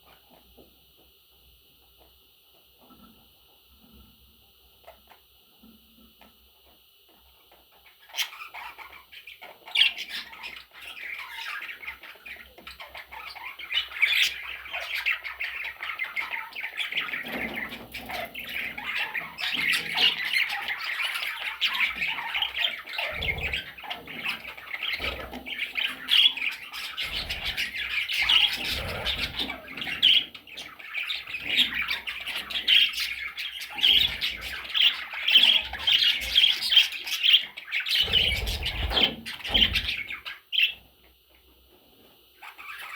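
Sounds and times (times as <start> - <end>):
budgerigars chattering and squawking: 7.4 - 40.8, 42.4 - 42.9.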